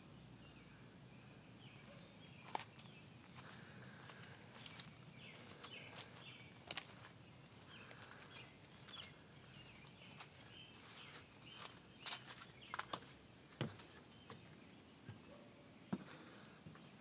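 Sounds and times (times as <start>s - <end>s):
faint bird chirps: 0.4s - 13.2s.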